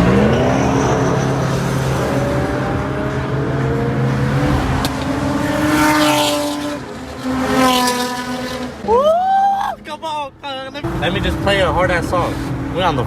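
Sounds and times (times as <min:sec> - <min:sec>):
car engine accelerating: 0:00.0 - 0:09.1.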